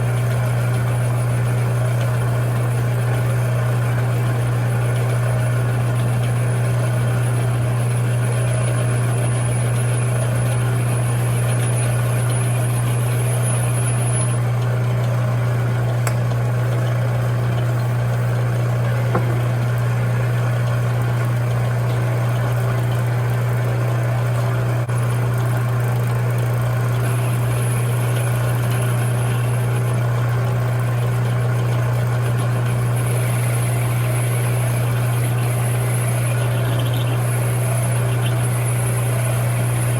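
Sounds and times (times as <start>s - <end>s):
metal lathe humming: 0.0s - 21.9s, 26.8s - 39.9s
thin high whine: 32.7s - 39.9s.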